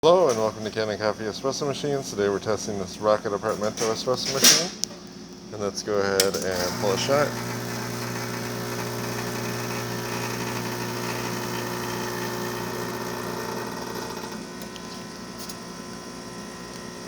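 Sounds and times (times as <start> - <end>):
espresso machine pump buzzing: 6.2 - 17.0.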